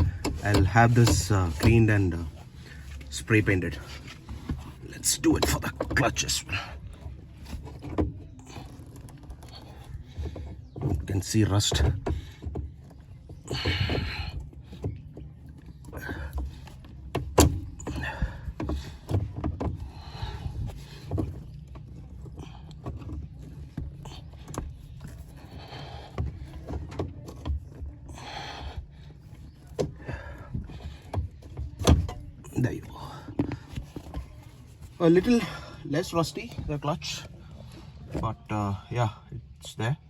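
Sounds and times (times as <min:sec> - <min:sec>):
knocks and clicks: 0:00.0 - 0:02.4.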